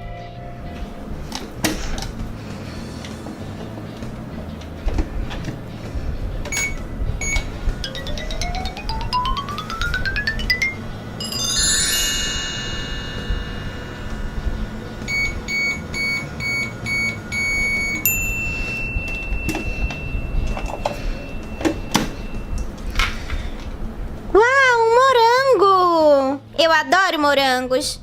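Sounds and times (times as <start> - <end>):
long steady high beep: 6.5 - 7.6, 15.1 - 22.7
toy electronic beeps: 6.5 - 10.0, 15.1 - 18.1
sparkling chime cascade: 11.2 - 14.8.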